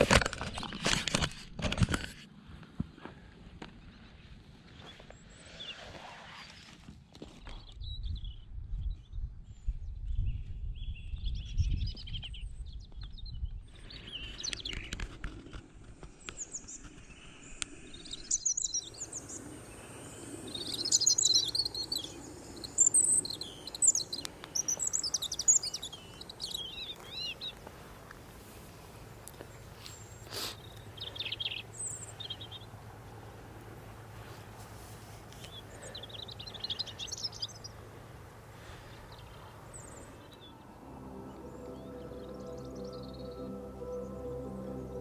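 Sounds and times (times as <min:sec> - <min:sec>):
low rumble on microphone: 0:07.7 - 0:14.4
robin singing: 0:16.2 - 0:27.7, 0:29.4 - 0:32.8, 0:35.4 - 0:37.8, 0:38.6 - 0:45.0.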